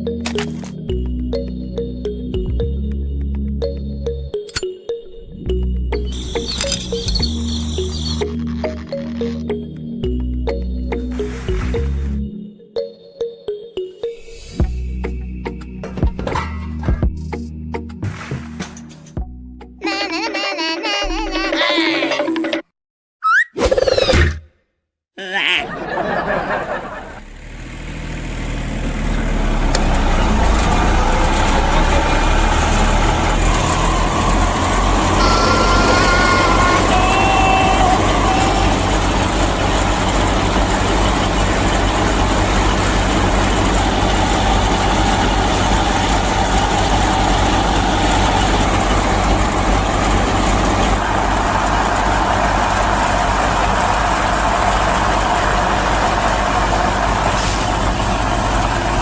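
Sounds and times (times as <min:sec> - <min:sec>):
heavy engine rumbling: 0:25.7 - 0:59.0
brief high tones: 0:35.2 - 0:38.9.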